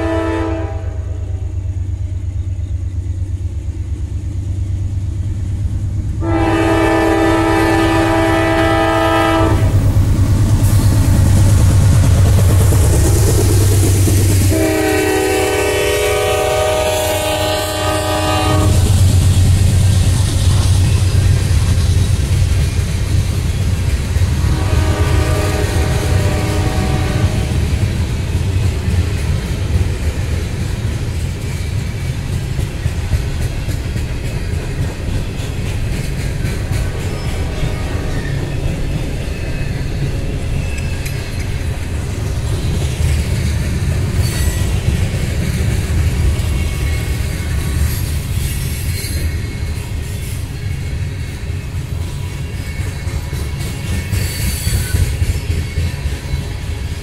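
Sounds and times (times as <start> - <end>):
locomotive horn blasts: 0.0 - 1.3, 6.2 - 9.8, 14.5 - 18.9, 24.4 - 27.6
freight train rumble and clatter: 0.0 - 57.0.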